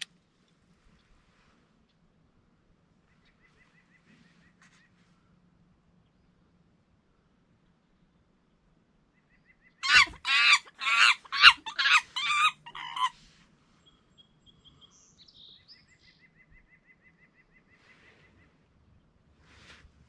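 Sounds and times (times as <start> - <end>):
bird harsh calls: 9.8 - 13.1.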